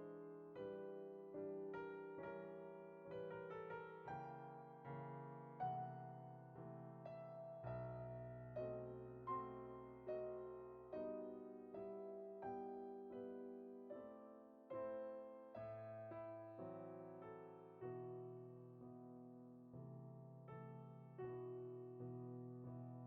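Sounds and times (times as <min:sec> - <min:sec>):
slow piano music: 0:00.0 - 0:23.0.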